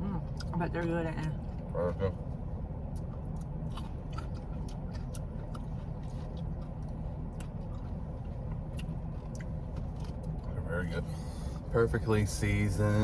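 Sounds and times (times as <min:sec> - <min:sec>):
steady low hum: 0:00.0 - 0:13.0
person chewing fries: 0:02.8 - 0:10.5.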